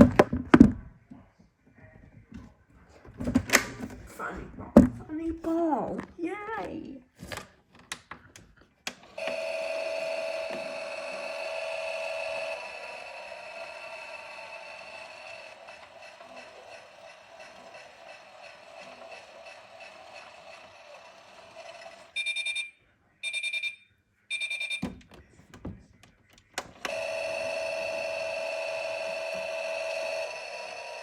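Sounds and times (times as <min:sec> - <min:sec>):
washing machine running: 0:09.0 - 0:22.2, 0:26.6 - 0:31.0
short beeps: 0:22.2 - 0:24.9.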